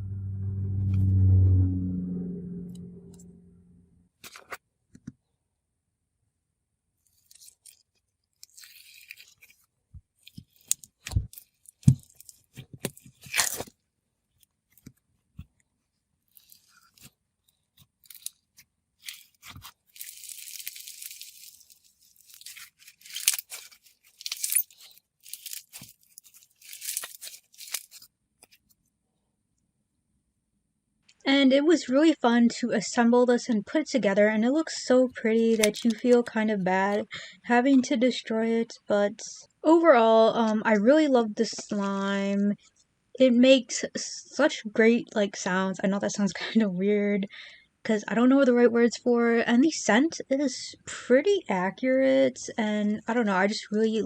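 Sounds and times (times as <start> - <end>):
low tone: 0.0 - 4.0
slime crunching and crackling: 8.4 - 9.6, 19.0 - 28.1.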